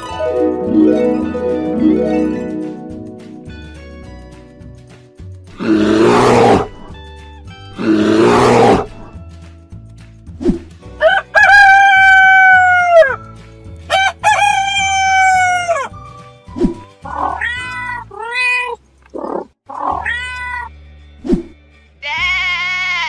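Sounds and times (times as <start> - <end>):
background music with bass: 0.0 - 17.5
rooster crowing: 11.0 - 13.2, 13.9 - 15.9
cat meowing: 17.1 - 18.8, 19.7 - 20.7.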